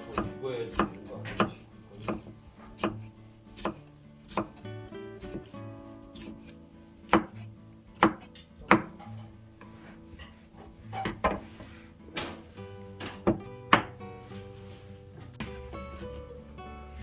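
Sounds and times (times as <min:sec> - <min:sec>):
knife chopping on cutting board: 0:00.0 - 0:04.6, 0:05.2 - 0:05.5, 0:06.1 - 0:10.4, 0:11.0 - 0:14.0, 0:15.4 - 0:16.2.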